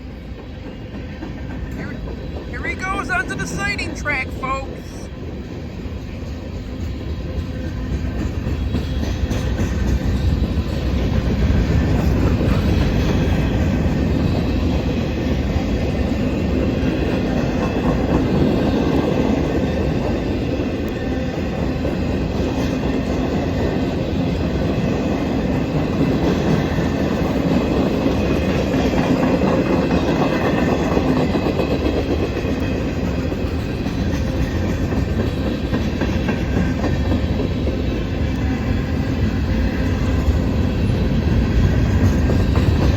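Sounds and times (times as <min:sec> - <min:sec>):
freight train wheels rumbling: 0:00.0 - 0:42.9.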